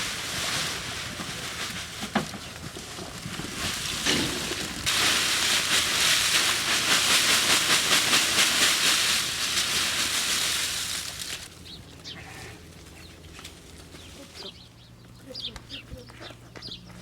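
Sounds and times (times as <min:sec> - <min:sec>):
loud hissing: 0:04.0 - 0:11.5.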